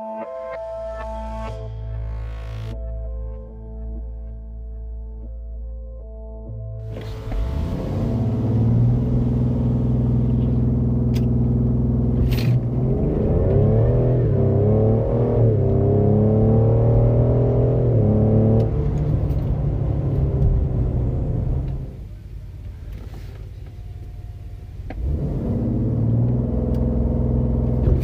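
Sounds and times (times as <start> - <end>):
car engine accelerating: 6.8 - 28.0.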